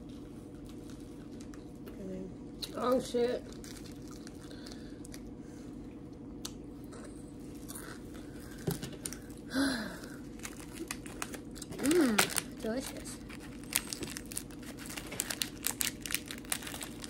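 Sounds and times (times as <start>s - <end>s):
person chewing a crunchy snack: 3.5s - 5.3s, 6.8s - 9.4s, 10.2s - 12.5s, 13.2s - 17.0s
person humming mm: 11.8s - 12.3s.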